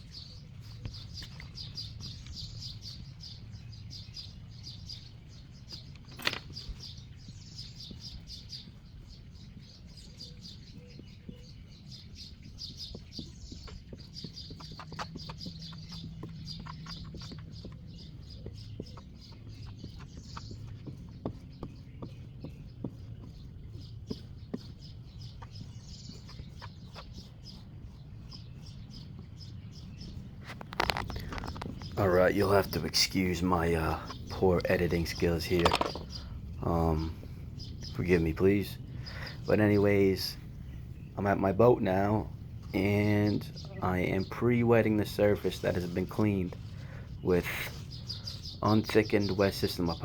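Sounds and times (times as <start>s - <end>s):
birds chirping: 0.0s - 50.0s
small clicks: 5.7s - 6.9s
steady low rumble: 29.6s - 50.0s.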